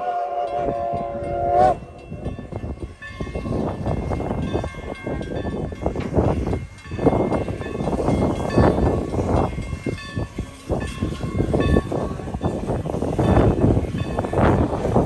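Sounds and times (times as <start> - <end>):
steam train rumbling: 0.0 - 15.0.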